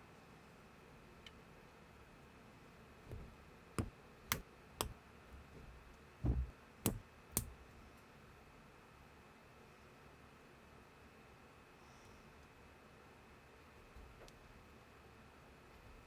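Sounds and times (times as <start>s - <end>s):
soft low knocks: 6.2s - 7.0s.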